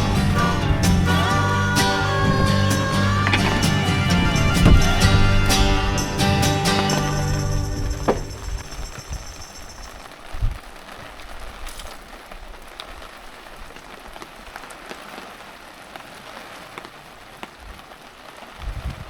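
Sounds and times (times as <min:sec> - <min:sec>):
low thumps: 0:00.0 - 0:09.7
heavy rain falling: 0:00.0 - 0:19.0.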